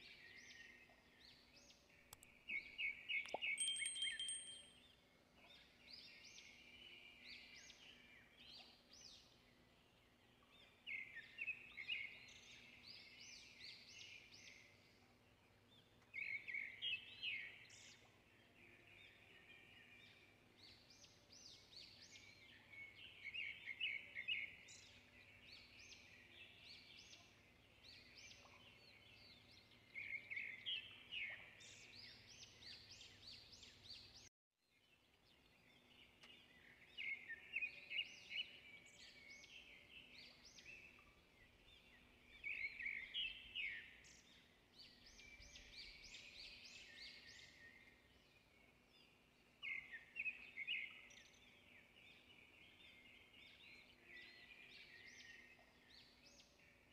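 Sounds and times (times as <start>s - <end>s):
birds chirping: 0.1s - 5.0s.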